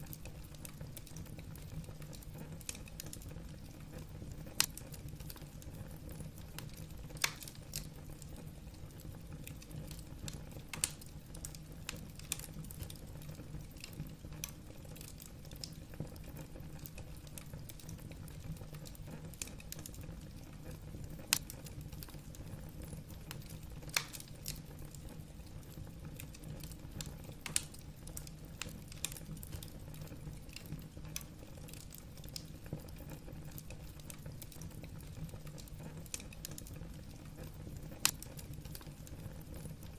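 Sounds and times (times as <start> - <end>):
fire pops: 0.0 - 39.9
logs crackling: 6.6 - 7.9, 23.3 - 24.6, 38.0 - 38.8.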